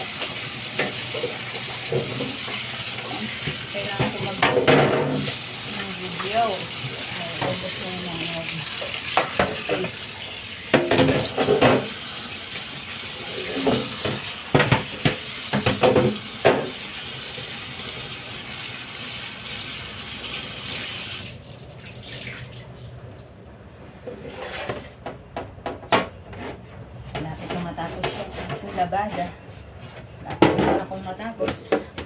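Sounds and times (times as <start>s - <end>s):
tap water running into sink: 0.0s - 23.3s
items knocking against sink: 0.2s - 2.6s, 3.3s - 5.4s, 8.8s - 10.0s, 10.7s - 12.0s, 13.5s - 16.8s.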